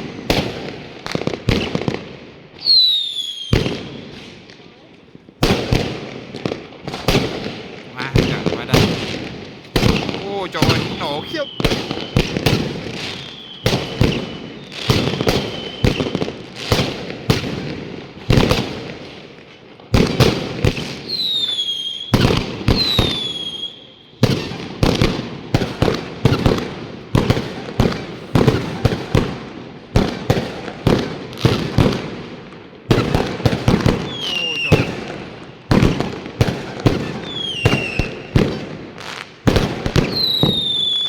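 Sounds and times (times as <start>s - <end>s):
fireworks bangs: 0.0s - 41.0s
whistling firework shrieking: 2.6s - 4.1s, 10.7s - 16.3s, 21.1s - 23.9s, 37.3s - 38.2s, 40.0s - 41.0s.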